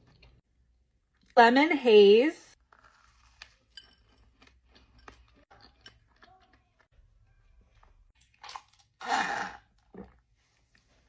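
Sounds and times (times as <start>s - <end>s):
chewing with mouth clicks: 2.8s - 6.9s.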